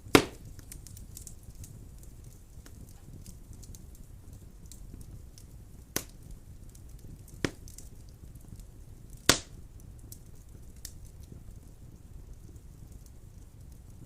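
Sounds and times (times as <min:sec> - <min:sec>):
burning wood popping: 0:00.0 - 0:14.0
fire flames rumbling: 0:00.0 - 0:14.0.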